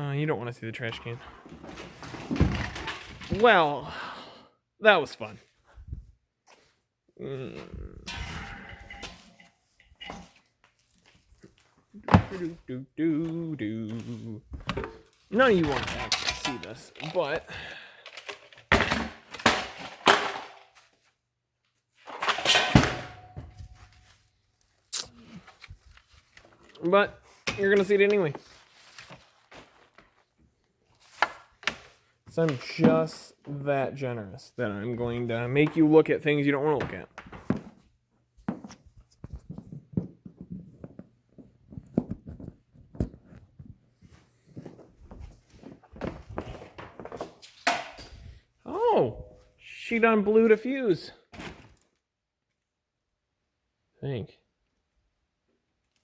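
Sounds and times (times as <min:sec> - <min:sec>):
tools knocking and clattering: 0:08.1 - 0:10.4, 0:14.6 - 0:17.4.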